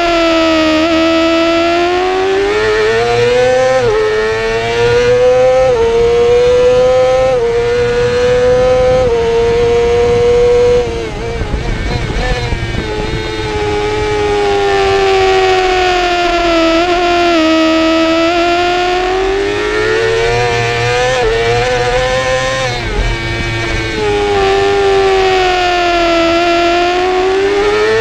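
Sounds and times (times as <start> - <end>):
motorcycle engine revving: 0.0 - 28.0
wind rush: 7.4 - 17.0.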